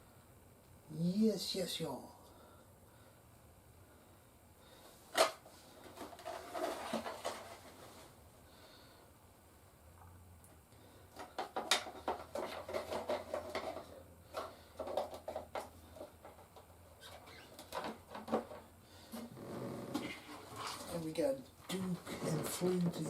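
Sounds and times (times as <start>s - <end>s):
plastic toys clicking and rattling: 11.2s - 16.5s.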